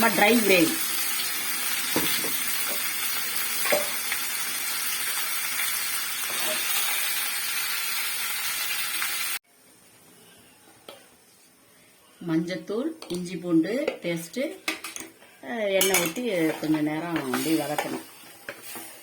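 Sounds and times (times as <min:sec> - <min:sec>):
chicken sizzling in hot oil: 0:00.0 - 0:09.4.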